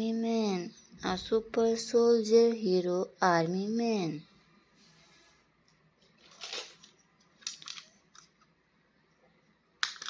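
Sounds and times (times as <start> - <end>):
plastic packaging crinkling: 6.0 - 8.3.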